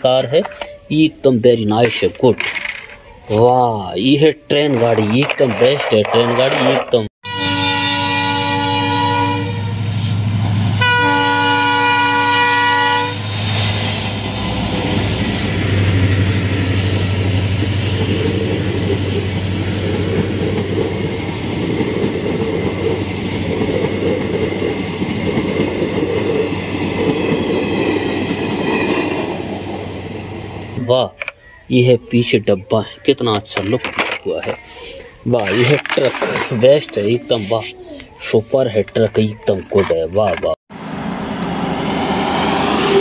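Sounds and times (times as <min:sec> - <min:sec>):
diesel locomotive engine: 0:06.8 - 0:31.3, 0:40.7 - 0:43.0
train horn: 0:07.2 - 0:10.0, 0:10.8 - 0:13.3
train wheels clattering on rails: 0:16.8 - 0:29.3.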